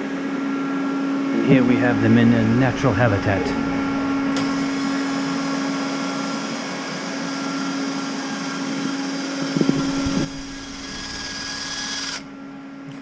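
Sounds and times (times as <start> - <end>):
machinery motor hum: 0.0 - 13.0
constant low tone: 1.4 - 7.3.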